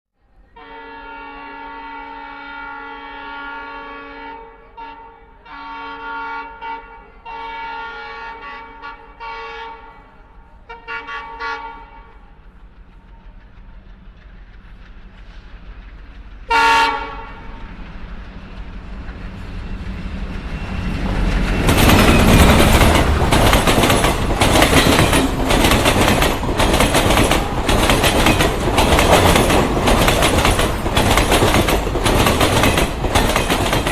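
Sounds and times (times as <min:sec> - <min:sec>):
locomotive horn blasts: 0:00.6 - 0:10.1, 0:10.7 - 0:12.1, 0:16.5 - 0:17.6
train rumble: 0:04.5 - 0:33.9
wheels clattering over rail joints: 0:17.7 - 0:33.9.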